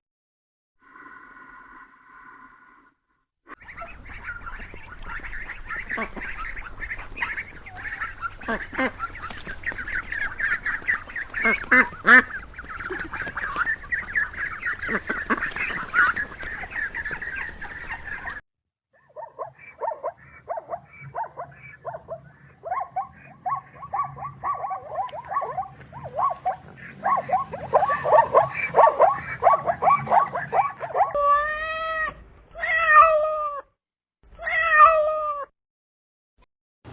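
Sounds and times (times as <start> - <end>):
dense chorus of animal calls: 3.5 - 18.4, 19.0 - 33.6
rapid short repeated calls: 3.6 - 18.4.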